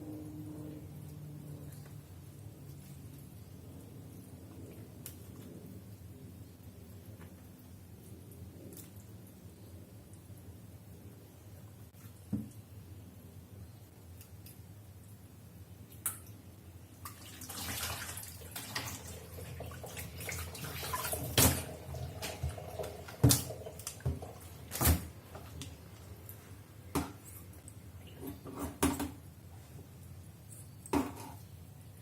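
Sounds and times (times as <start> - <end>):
water splashing in sink: 17.0 - 25.6.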